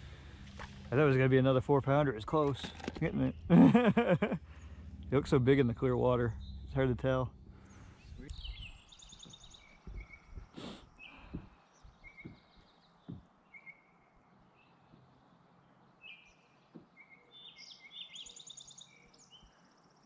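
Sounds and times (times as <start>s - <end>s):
birds chirping and trilling: 0.0s - 20.0s
faint low knocks: 2.0s - 13.3s.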